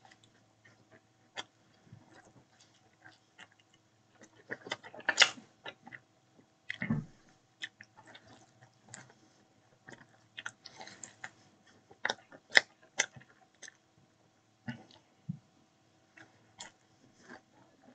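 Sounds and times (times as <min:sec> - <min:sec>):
person chewing pizza: 0:00.0 - 0:06.1, 0:07.6 - 0:13.8, 0:16.1 - 0:17.9.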